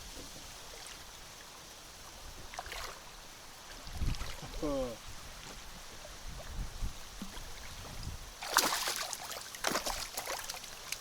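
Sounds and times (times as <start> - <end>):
water splashing beside boat: 0.0 - 11.0
low wind rumble: 3.1 - 8.4.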